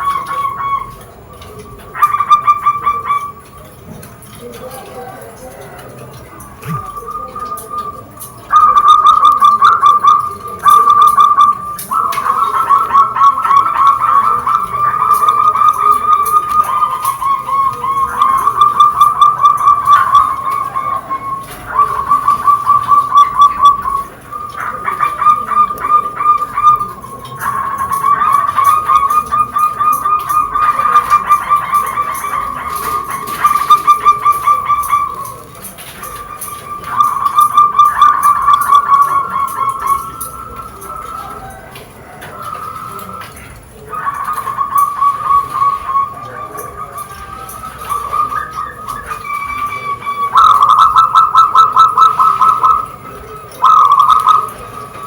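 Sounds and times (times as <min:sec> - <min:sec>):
bird calling in rapid notes: 0:00.0 - 0:03.8, 0:06.1 - 0:55.0
doves cooing trill: 0:00.0 - 0:55.0.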